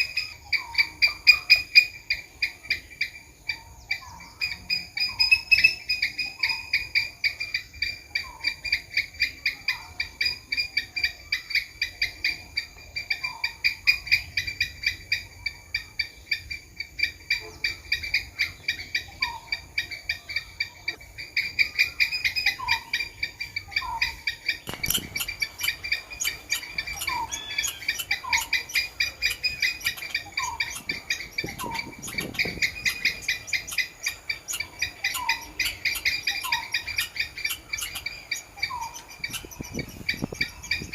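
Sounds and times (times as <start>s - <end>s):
squirrel calling: 0.0s - 40.9s.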